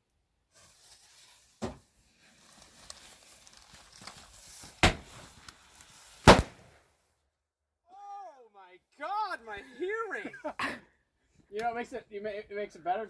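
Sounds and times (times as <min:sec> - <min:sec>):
fireworks crackling and hissing: 0:00.0 - 0:07.1
fireworks bangs: 0:00.8 - 0:06.8.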